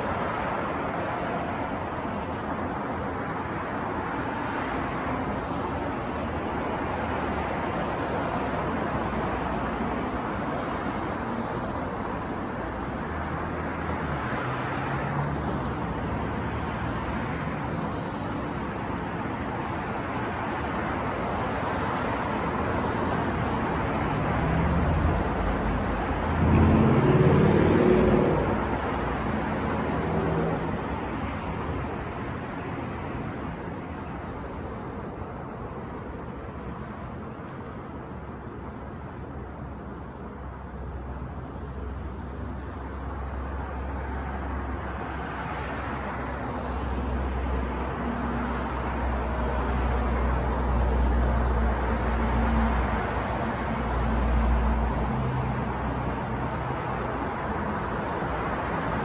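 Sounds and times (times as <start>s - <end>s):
passing cars: 0.0s - 59.0s
deep engine passing by: 24.3s - 30.9s.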